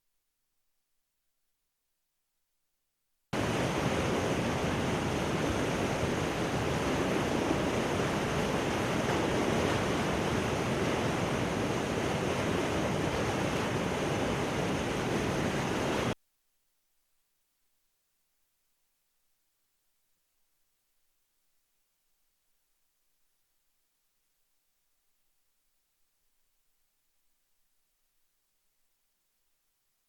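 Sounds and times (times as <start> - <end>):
water rushing through dam gates: 3.4 - 16.2.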